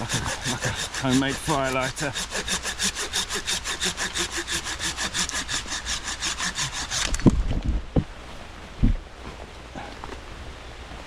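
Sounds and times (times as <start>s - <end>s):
hand saw cutting wood: 0.0s - 7.3s.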